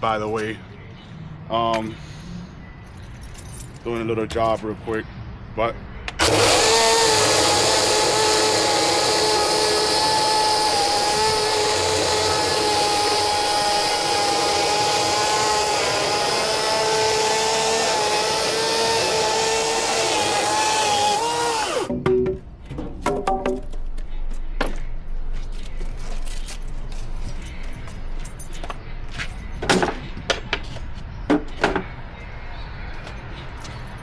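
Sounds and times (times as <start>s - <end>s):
battery chainsaw whining: 6.2s - 21.9s
chainsaw cutting wood: 6.2s - 21.9s.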